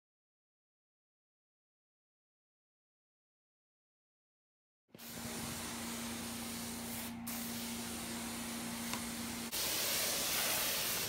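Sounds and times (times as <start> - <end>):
low steady hum: 5.0 - 9.6
spray hissing onto carpet: 5.0 - 11.0.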